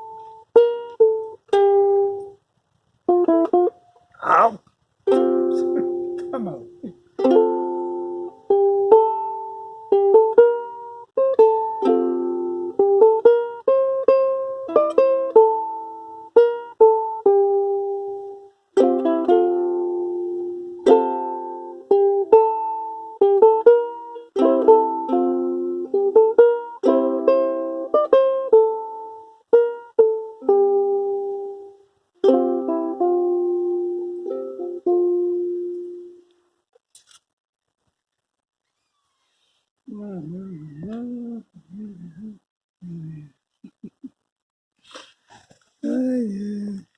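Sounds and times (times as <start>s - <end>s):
ukulele playing a tune: 0.0s - 2.4s, 3.1s - 3.9s, 5.0s - 36.3s.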